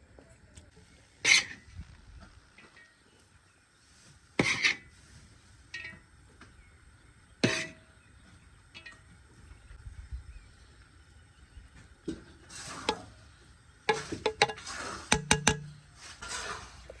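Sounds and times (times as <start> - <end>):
metal cookware clanking: 5.8 - 6.0, 13.9 - 16.1.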